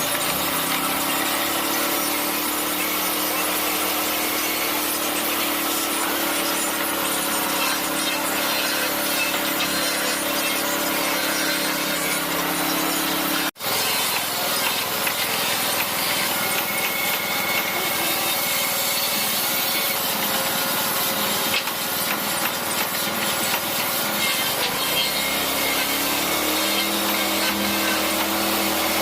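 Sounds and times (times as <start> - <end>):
woodworking tool rasping timber: 0.0 - 29.0.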